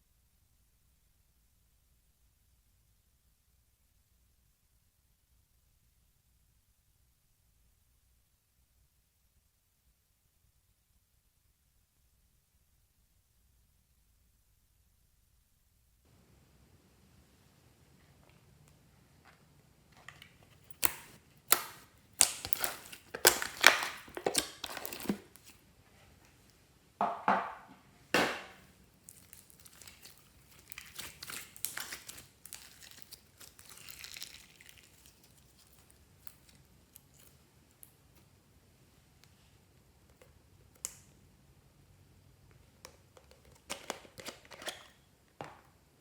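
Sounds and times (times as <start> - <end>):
crinkling and crackling: 18.0 - 26.6, 28.5 - 38.3.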